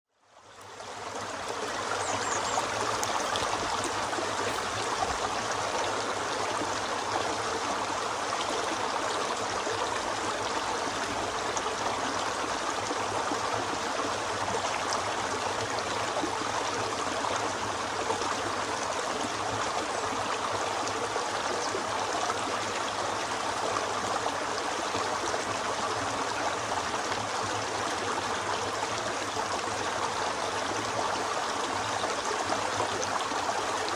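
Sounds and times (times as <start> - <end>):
river rushing over rocks: 1.0 - 14.9.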